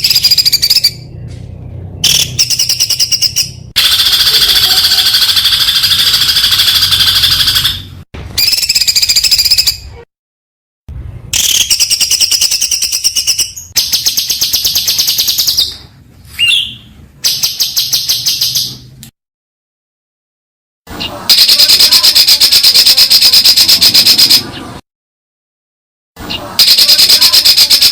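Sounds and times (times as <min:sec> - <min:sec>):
swooping whistle: 0:02.0 - 0:09.8, 0:11.4 - 0:15.6, 0:21.3 - 0:24.4.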